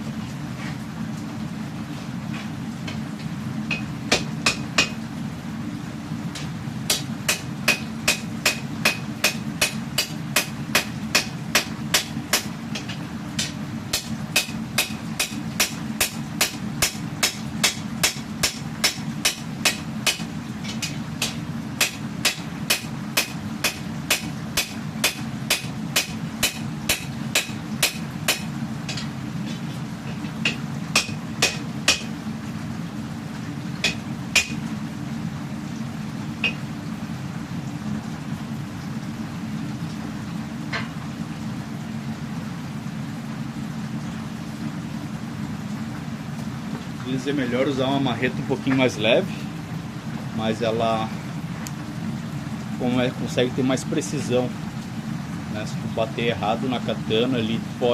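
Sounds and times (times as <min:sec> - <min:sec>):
hammer striking steel on anvil: 0:06.4 - 0:29.1, 0:30.4 - 0:32.1, 0:33.8 - 0:34.6.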